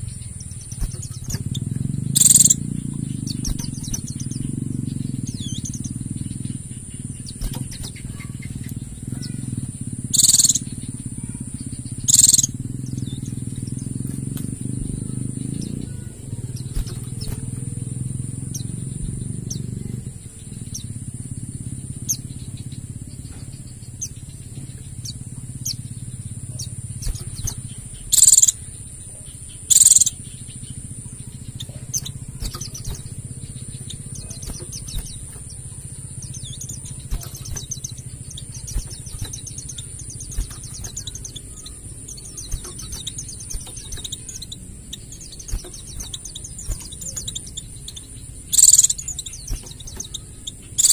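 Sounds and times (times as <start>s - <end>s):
low rumble: 0.0s - 50.7s
birds twittering: 0.0s - 50.9s.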